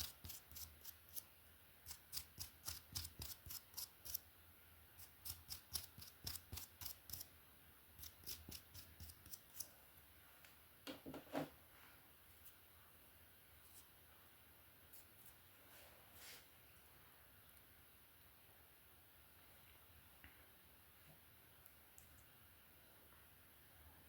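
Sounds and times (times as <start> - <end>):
brush strokes through hair: 14.9 - 16.6.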